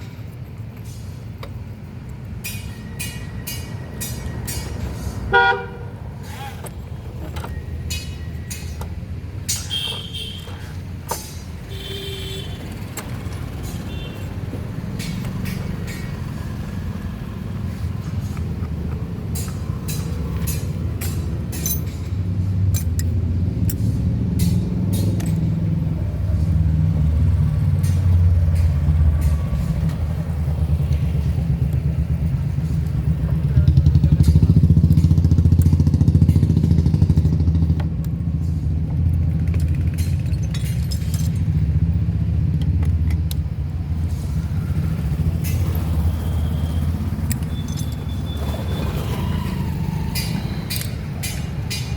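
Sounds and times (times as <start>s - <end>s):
sharp metallic clicks: 18.3s - 25.6s, 44.9s - 48.5s, 49.4s - 51.9s
motorcycle engine running: 30.3s - 38.1s.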